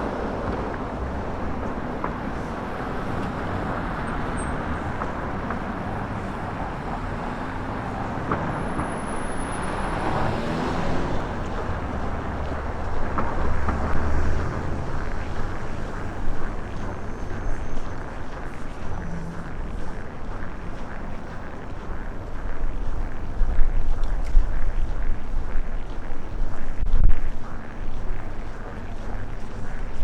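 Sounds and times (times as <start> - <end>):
city traffic rush: 0.0 - 30.0
wind buffeting microphone: 0.0 - 30.0.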